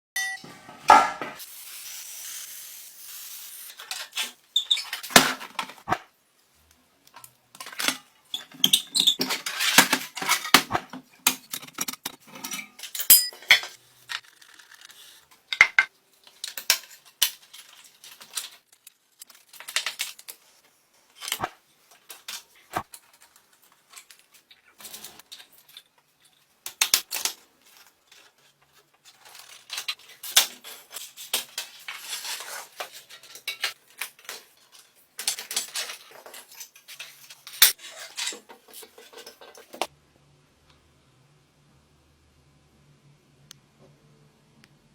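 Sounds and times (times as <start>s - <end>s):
metal tools clinking: 11.4s - 14.2s.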